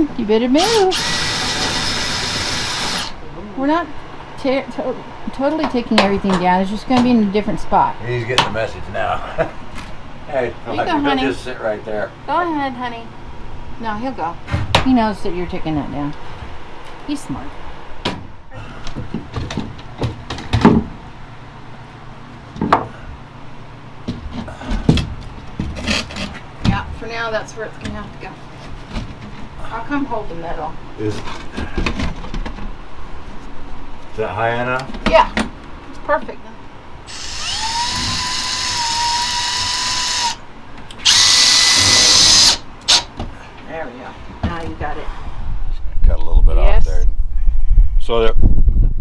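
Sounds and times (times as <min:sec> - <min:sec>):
power drill driving screws: 0:00.6 - 0:03.2, 0:37.1 - 0:40.4, 0:41.0 - 0:43.1.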